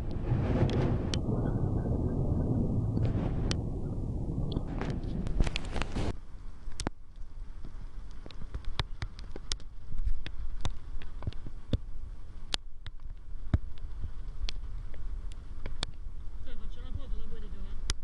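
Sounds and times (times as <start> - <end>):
raindrops tapping: 0.0 - 6.1
wind rumble on microphone: 0.0 - 18.0.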